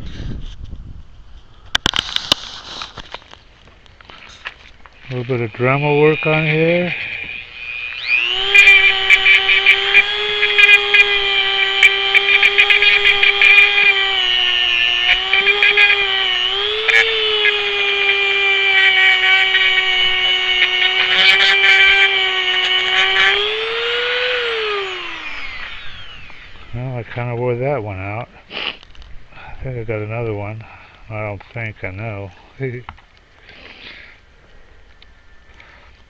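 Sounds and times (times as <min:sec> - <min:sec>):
rotary tool grinding metal: 0:05.0 - 0:27.4.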